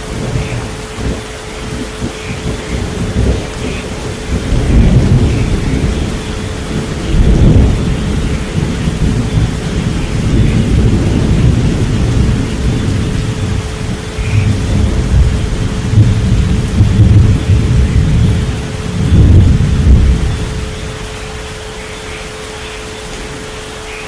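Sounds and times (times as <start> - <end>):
rolling thunder: 0.0 - 21.6
steady rain: 0.0 - 24.0.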